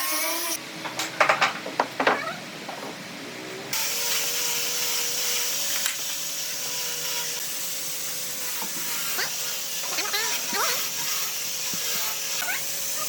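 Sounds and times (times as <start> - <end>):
electric power tool running: 0.0 - 0.6, 3.7 - 13.0.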